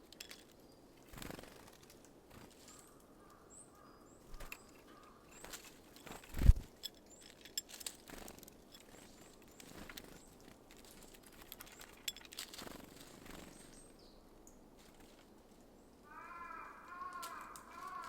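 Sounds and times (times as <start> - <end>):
thin high bird chirp: 2.6 - 10.4
birds tapping at feeder: 4.3 - 13.5
soft rustles: 5.3 - 13.7.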